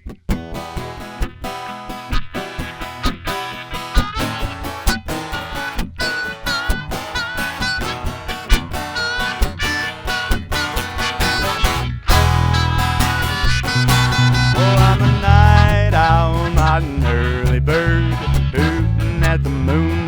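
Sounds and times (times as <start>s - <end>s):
acoustic guitar strumming: 0.0s - 20.0s
bass: 0.0s - 20.0s
wavering melody line: 11.2s - 17.4s.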